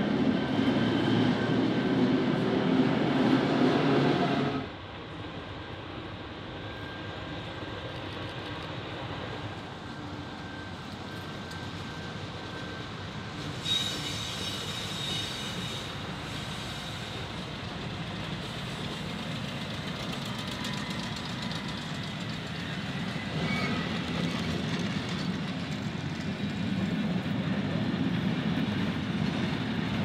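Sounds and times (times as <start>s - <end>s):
freight train rolling on rails: 0.0s - 30.0s
high wheel squeal: 10.4s - 17.6s, 20.3s - 25.3s.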